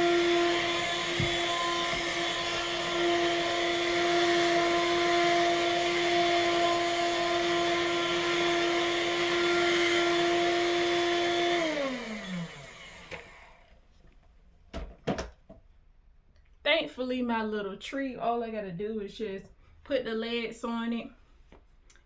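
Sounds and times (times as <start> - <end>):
vacuum cleaner running: 0.0 - 13.7.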